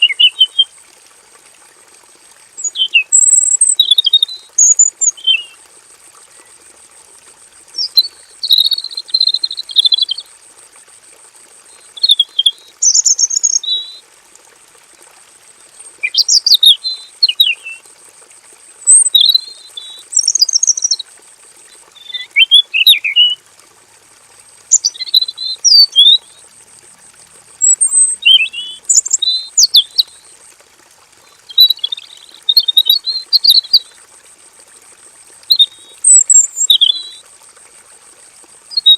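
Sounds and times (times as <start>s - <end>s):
bird singing whistled phrases: 0.0s - 0.7s, 2.6s - 5.6s, 7.8s - 10.3s, 12.0s - 14.0s, 16.0s - 17.8s, 18.9s - 21.0s, 22.0s - 23.4s, 24.7s - 26.4s, 27.6s - 30.2s, 31.5s - 33.9s, 35.5s - 37.2s.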